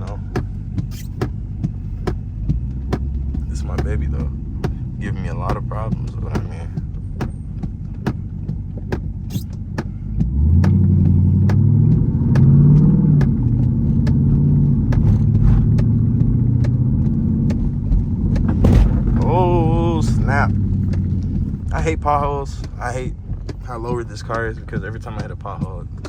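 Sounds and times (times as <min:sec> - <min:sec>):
car engine accelerating: 0:00.0 - 0:26.0
regular ticking: 0:00.0 - 0:26.0.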